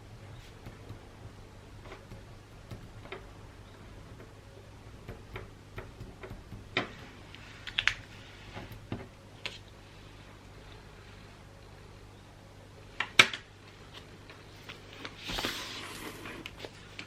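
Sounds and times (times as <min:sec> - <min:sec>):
taps and clicks of wrapping materials: 0:00.6 - 0:03.3, 0:05.0 - 0:07.0.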